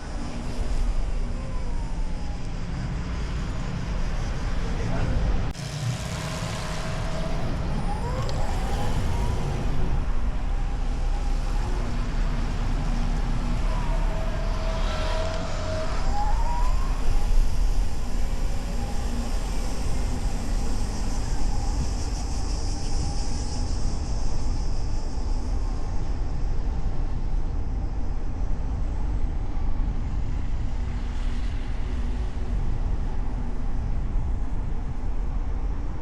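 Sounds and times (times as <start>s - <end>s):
road and engine noise: 0.0s - 36.0s
siren rising in pitch: 6.4s - 20.0s.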